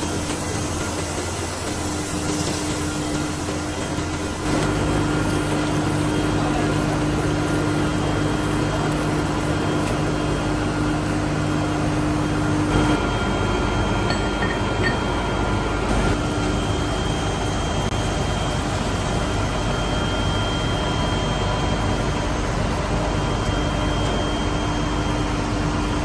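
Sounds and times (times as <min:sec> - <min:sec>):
workshop machinery humming: 0:00.0 - 0:26.0.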